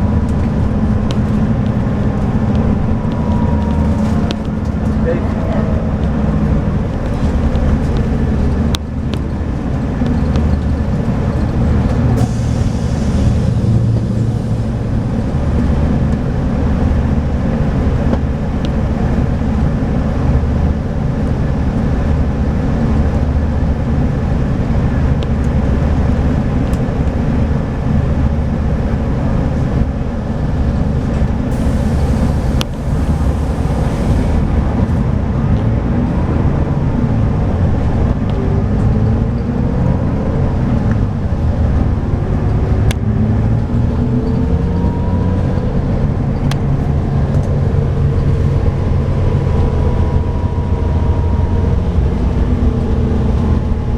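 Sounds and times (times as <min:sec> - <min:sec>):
diesel coach engine running: 0:00.0 - 0:53.9
brief hiss: 0:31.5 - 0:35.0.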